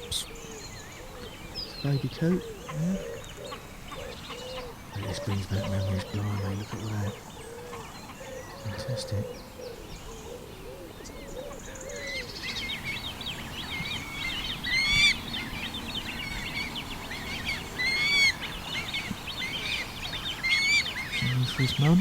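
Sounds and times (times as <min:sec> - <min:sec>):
birds calling: 0:00.0 - 0:22.0.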